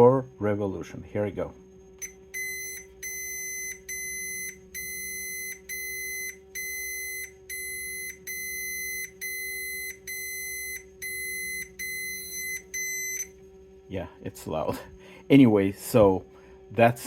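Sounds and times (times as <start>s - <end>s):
low hum: 0.0s - 17.0s
continuity tester beeping: 2.0s - 13.4s.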